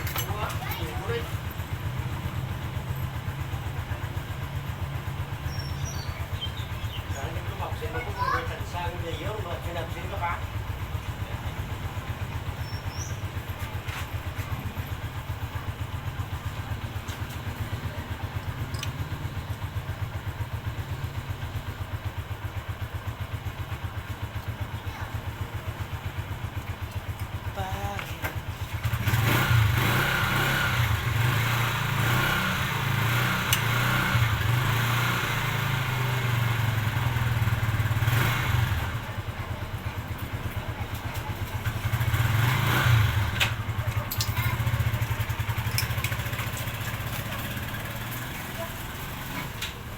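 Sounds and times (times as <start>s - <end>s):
motorcycle engine idling: 0.0s - 49.9s.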